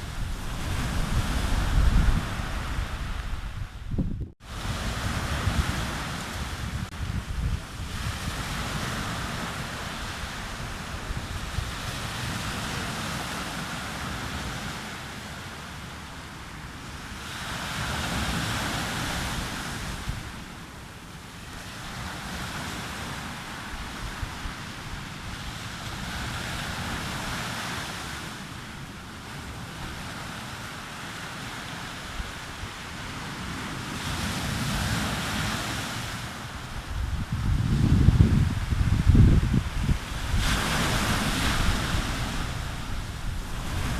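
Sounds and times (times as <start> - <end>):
wind rumbling on microphone: 0.0 - 14.7, 21.6 - 27.9, 31.7 - 43.9
sea waves breaking on beach: 0.0 - 43.9.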